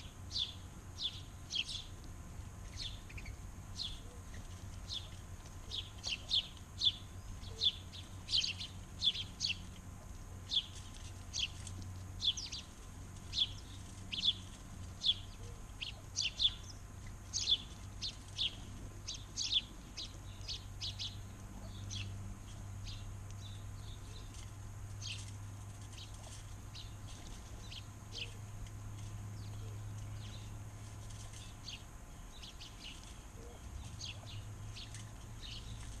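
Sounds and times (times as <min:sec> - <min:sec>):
birds chirping: 0:00.0 - 0:36.0
low steady hum: 0:00.0 - 0:36.0.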